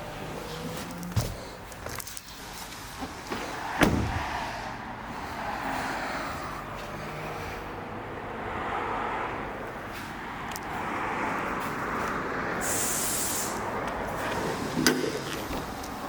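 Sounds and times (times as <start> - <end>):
car noise rumble and hiss: 0.0 - 16.0
burst of high hiss: 12.6 - 13.7.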